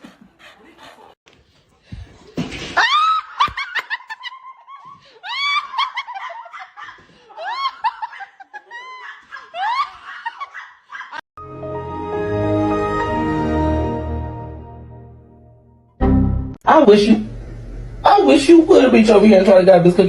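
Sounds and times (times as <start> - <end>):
music: 11.4 - 16.6.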